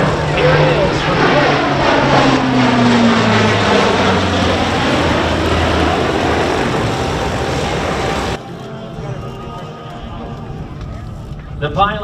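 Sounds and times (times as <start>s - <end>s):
turboprop aircraft droning past: 0.0s - 9.2s.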